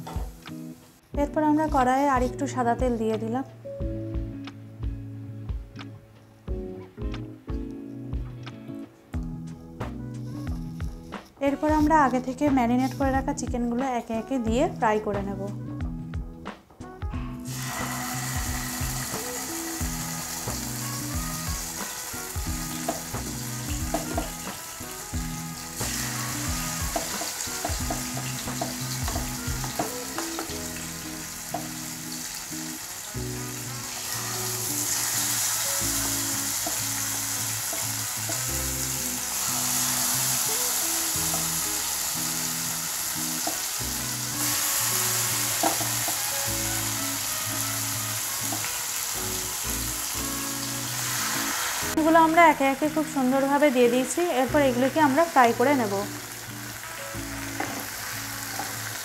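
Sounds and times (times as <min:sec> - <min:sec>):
chicken sizzling in frying pan: 0:17.4 - 0:59.0.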